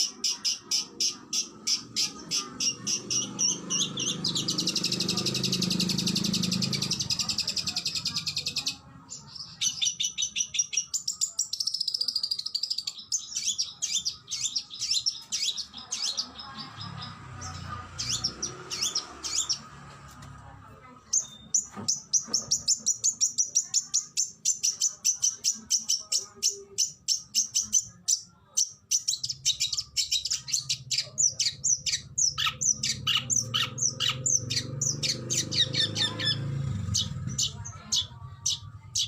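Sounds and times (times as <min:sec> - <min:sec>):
bird singing: 0:00.0 - 0:19.8, 0:21.1 - 0:39.0.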